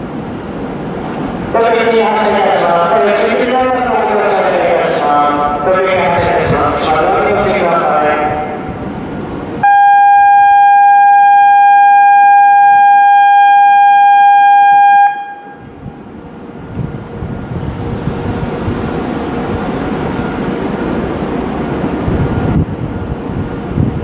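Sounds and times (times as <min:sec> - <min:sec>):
train rushing through station: 0:00.0 - 0:24.0
train horn long loud note: 0:09.6 - 0:15.8.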